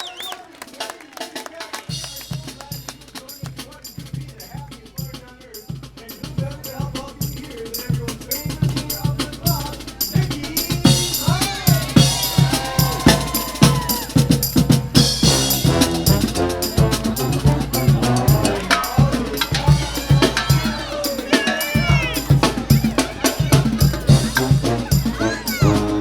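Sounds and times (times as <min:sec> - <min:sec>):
bass drum and snare beat: 0:00.7 - 0:26.0
brass melody: 0:10.4 - 0:26.0.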